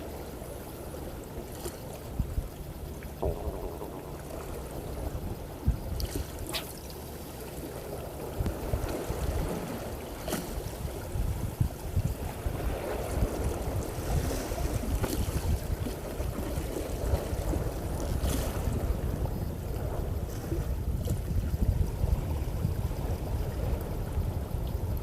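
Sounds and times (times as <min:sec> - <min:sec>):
water washing against boat: 0:00.0 - 0:25.0
faint ticks: 0:00.3 - 0:07.8, 0:08.4 - 0:09.0, 0:23.6 - 0:25.0
wind buffeting microphone: 0:02.1 - 0:06.8, 0:07.8 - 0:25.0.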